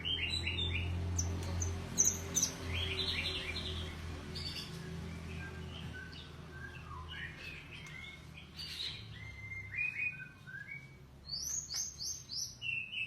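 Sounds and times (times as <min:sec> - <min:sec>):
songbird whistling: 0:04.4 - 0:13.0.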